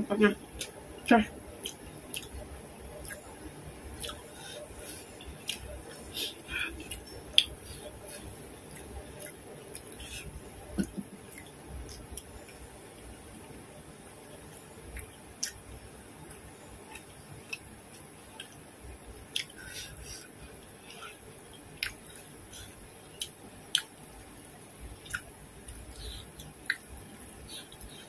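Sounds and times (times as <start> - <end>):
mouth smacks and clicks: 1.6 - 2.4, 3.0 - 3.3, 4.0 - 12.6, 14.9 - 15.6, 19.3 - 19.7, 21.8 - 22.3, 23.1 - 24.0, 25.0 - 28.0
wet chewing: 1.6 - 3.3, 4.0 - 12.6, 19.3 - 24.0, 25.0 - 28.0.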